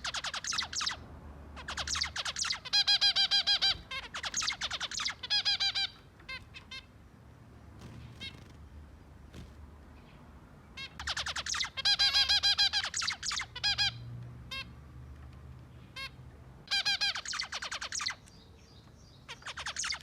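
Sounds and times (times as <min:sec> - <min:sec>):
finches chirping: 0:00.0 - 0:01.0, 0:01.6 - 0:07.0, 0:10.0 - 0:14.6, 0:15.8 - 0:20.0.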